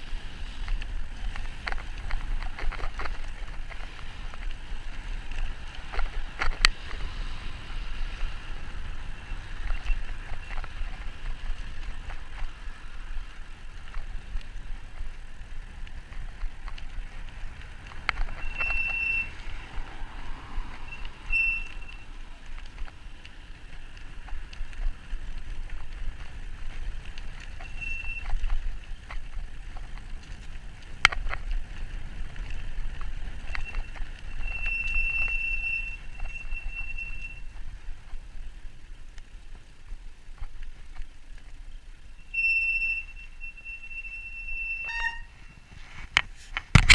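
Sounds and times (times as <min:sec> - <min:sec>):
high steady squeal: 0:18.3 - 0:19.5, 0:20.8 - 0:22.2, 0:33.5 - 0:37.5, 0:42.2 - 0:45.7.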